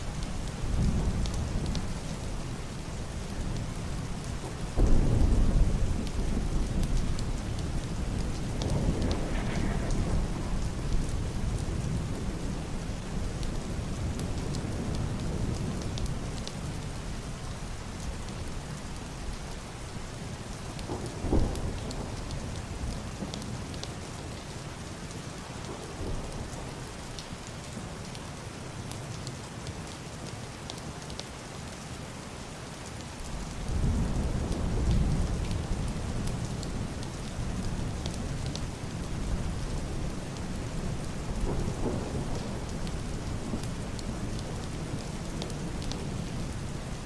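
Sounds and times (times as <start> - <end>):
heavy rain on roof and window: 0.0 - 47.0
thunder rumbling: 4.3 - 16.4, 33.6 - 47.0.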